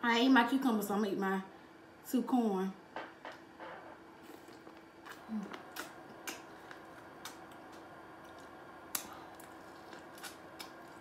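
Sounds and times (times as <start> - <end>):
person chewing corn: 4.2 - 11.0
person humming: 5.2 - 5.6.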